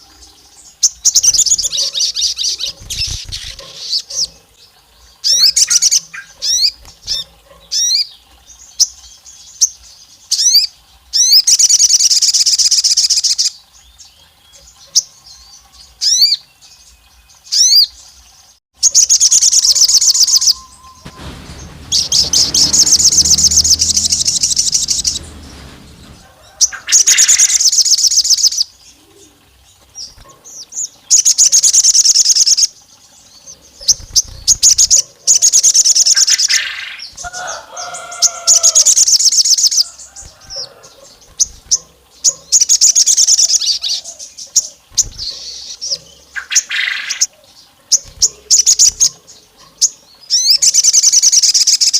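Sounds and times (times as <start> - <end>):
songbird chirping and trilling: 0.0 - 51.9
low rumble: 20.1 - 27.3.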